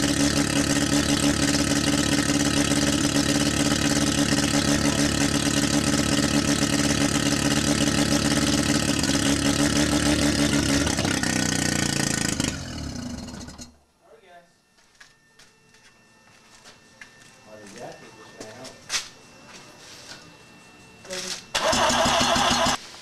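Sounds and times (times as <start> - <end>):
rotary engine idling loudly: 0.0 - 13.8, 21.6 - 22.8.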